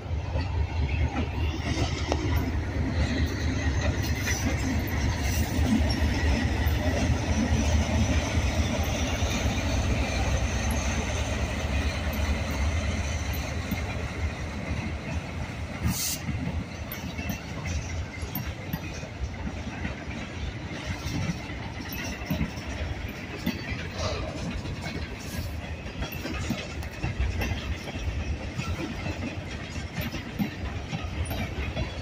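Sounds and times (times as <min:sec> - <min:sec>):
diesel locomotives running past: 0:00.0 - 0:32.0
freight cars rolling on rails: 0:00.0 - 0:32.0.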